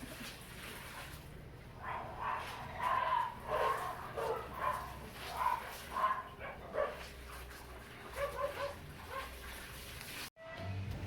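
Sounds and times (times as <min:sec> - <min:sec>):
dog barking: 0:01.8 - 0:07.1, 0:08.1 - 0:09.4.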